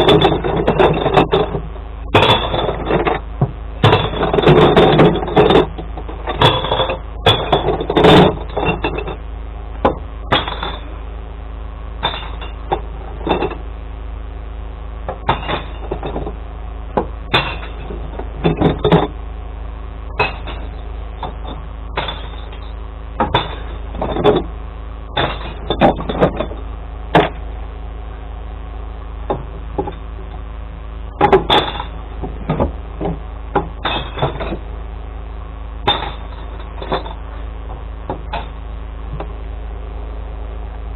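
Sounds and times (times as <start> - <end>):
knocks and clatters: 0.0 - 10.9, 12.0 - 13.6, 15.0 - 19.2, 20.1 - 24.5, 25.1 - 27.4, 29.2 - 30.4, 31.1 - 34.7, 35.8 - 39.4
truck engine running: 0.0 - 40.9.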